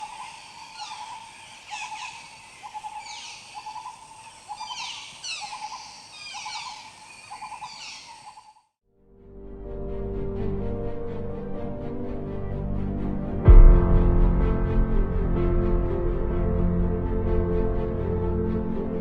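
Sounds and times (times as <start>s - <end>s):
high downward-sweeping bird calls: 0.0s - 8.5s.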